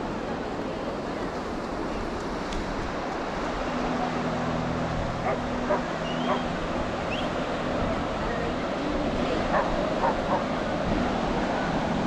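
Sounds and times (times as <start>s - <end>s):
surf washing: 0.0s - 12.0s
wind: 0.0s - 12.0s
dog barking: 5.2s - 6.5s, 9.5s - 10.5s.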